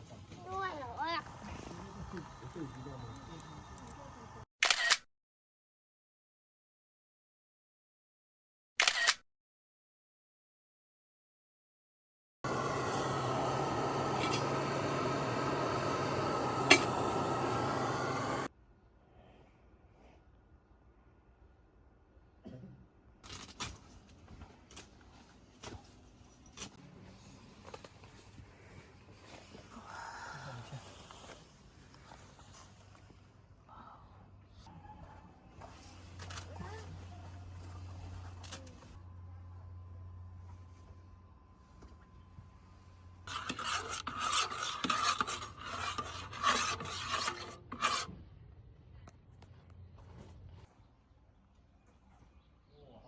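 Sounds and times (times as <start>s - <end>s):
hand saw cutting wood: 12.5s - 18.5s, 43.3s - 48.1s.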